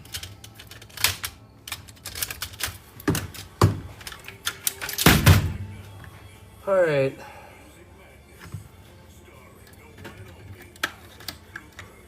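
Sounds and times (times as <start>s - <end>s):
electronic parts clicking and clattering: 0.0s - 5.4s.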